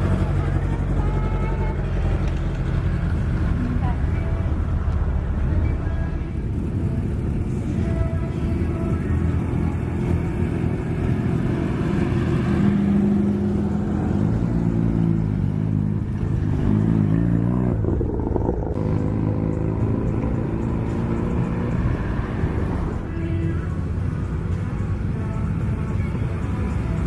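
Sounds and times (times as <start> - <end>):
car engine revving by: 11.1 - 22.9.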